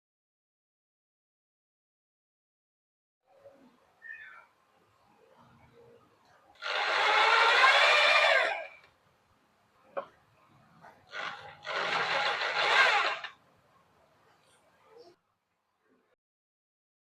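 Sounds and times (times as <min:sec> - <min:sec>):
high-speed electric power tool: 0:06.6 - 0:08.8, 0:11.1 - 0:13.4.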